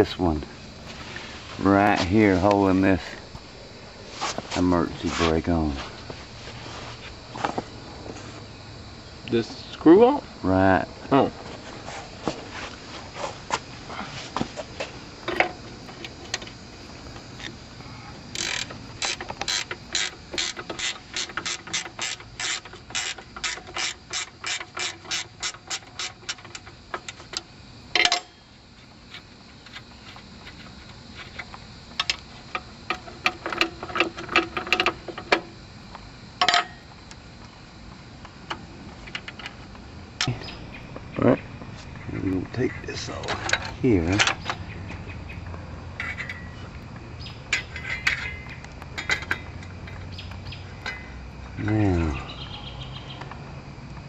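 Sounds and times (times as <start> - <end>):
ratchet wrench clicking: 18.3 - 26.6
metal clank: 28.0 - 28.4, 36.4 - 36.8, 46.0 - 46.6, 47.5 - 50.1, 50.8 - 51.2.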